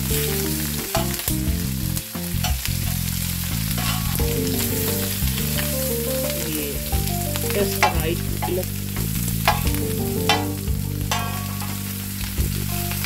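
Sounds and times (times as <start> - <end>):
chicken sizzling on a hot pan: 0.0 - 13.0
metal spatula scraping a pan: 3.7 - 4.2, 11.1 - 12.0.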